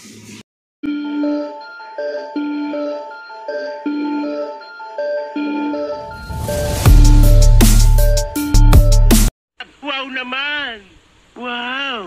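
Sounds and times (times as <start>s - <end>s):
steady noise: 6.0s - 9.1s.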